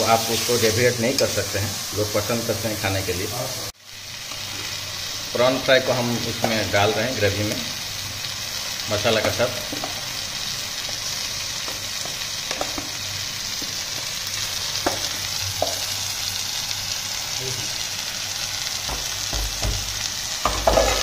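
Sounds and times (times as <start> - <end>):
prawns sizzling in gravy: 0.0 - 21.0
heavy knocks on pan: 18.9 - 21.0.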